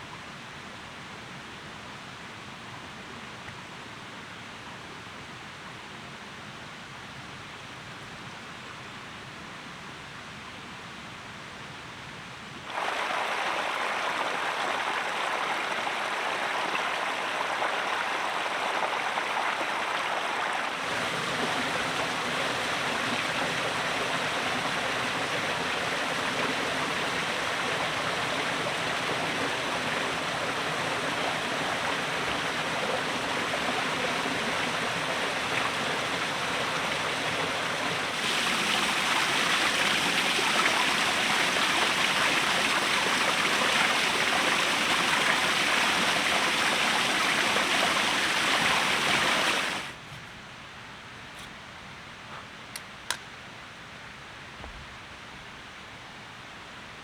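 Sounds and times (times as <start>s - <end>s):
flowing water: 12.6s - 50.1s.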